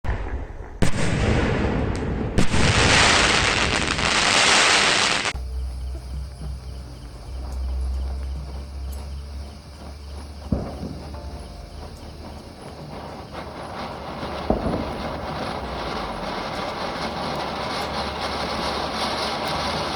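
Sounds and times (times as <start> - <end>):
firework bangs: 0.0 - 5.4, 6.0 - 19.9
firework hissing spray: 2.4 - 8.0, 8.7 - 19.9
low rumble with crackles: 4.9 - 19.9.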